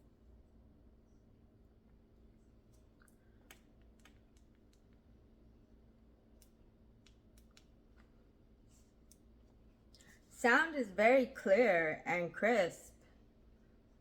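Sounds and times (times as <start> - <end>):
low room hum: 0.0 - 14.0
faint clicks: 2.7 - 5.1.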